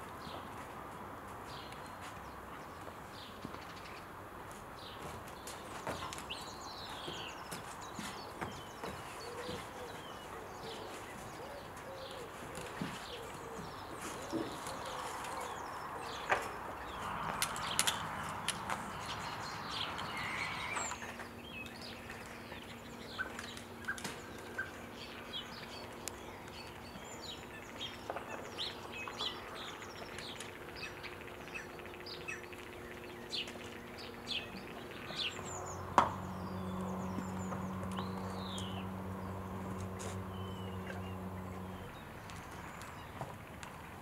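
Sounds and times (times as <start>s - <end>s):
small birds chirping: 0.1s - 44.0s
low steady hum: 30.7s - 43.0s.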